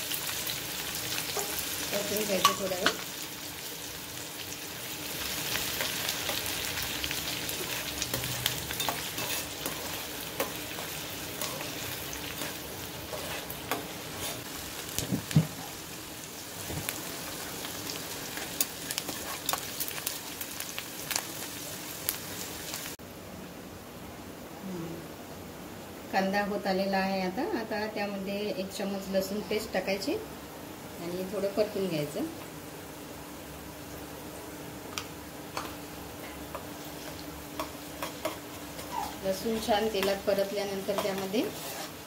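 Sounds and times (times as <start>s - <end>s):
onions sizzling in hot oil: 0.0s - 23.0s, 27.1s - 42.0s
metal spatula scraping pan: 7.6s - 11.8s, 12.4s - 14.5s, 40.8s - 42.0s.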